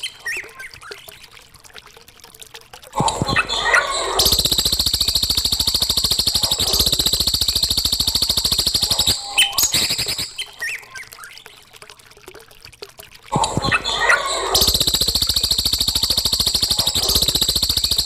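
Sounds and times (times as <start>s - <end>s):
fast buzzing bird trill: 4.2s - 10.5s, 14.5s - 18.0s
bird chirps: 4.2s - 11.1s.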